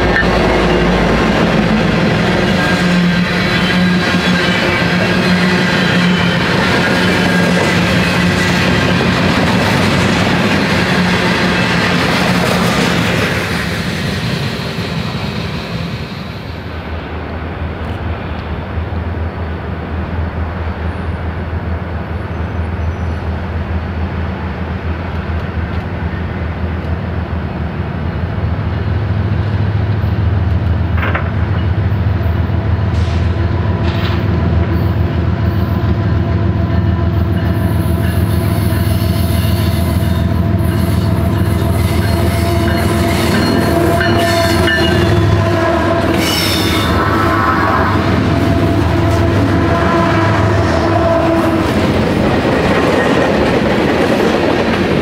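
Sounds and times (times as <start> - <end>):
train wheel clatter: 0.0 - 16.1, 29.9 - 32.0
diesel locomotive engine rumble: 0.0 - 55.0.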